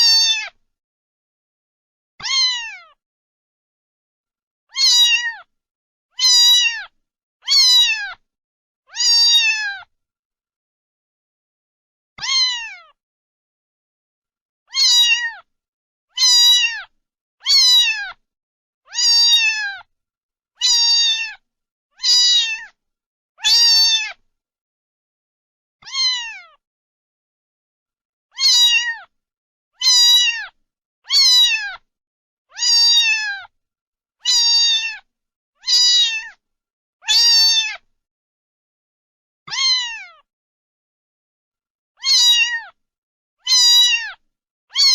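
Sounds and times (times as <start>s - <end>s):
cat meowing: 0.0s - 0.6s, 2.2s - 3.0s, 4.7s - 5.5s, 6.2s - 8.2s, 8.9s - 9.9s, 12.2s - 13.0s, 14.7s - 15.5s, 16.1s - 18.2s, 18.9s - 19.9s, 20.6s - 21.4s, 22.0s - 22.8s, 23.4s - 24.2s, 25.8s - 26.6s, 28.3s - 29.1s, 29.8s - 31.8s, 32.5s - 33.5s, 34.2s - 36.4s, 37.0s - 37.8s, 39.5s - 40.3s, 42.0s - 42.8s, 43.4s - 44.9s.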